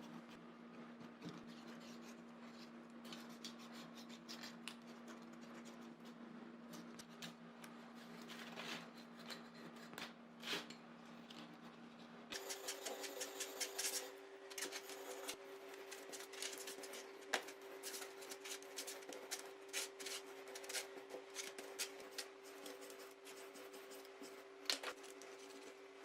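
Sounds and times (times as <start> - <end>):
steady low hum: 0.0 - 26.0
scraping and clicking of hand work: 6.7 - 23.1.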